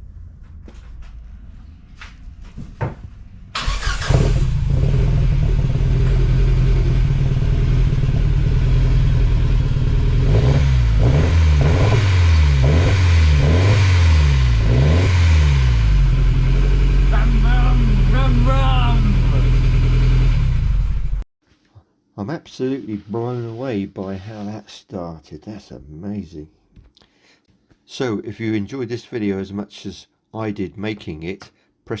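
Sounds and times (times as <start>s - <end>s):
car engine starting and revving: 3.5s - 21.2s.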